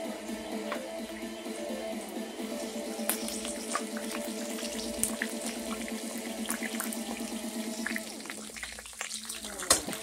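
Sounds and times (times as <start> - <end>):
meat sizzling in hot oil: 2.6 - 10.0.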